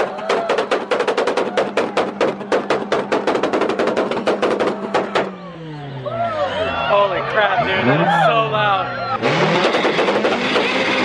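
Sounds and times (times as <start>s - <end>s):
exhaust bangs: 0.5s - 11.0s
car engine at rev limiter: 7.2s - 11.0s.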